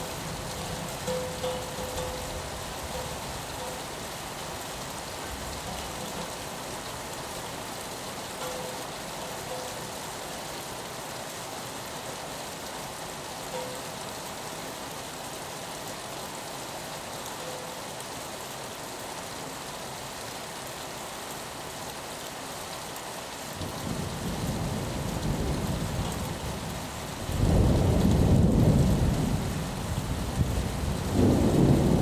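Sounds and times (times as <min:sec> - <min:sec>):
rain on a window: 0:00.0 - 0:32.0
thunder rolling: 0:31.1 - 0:32.0.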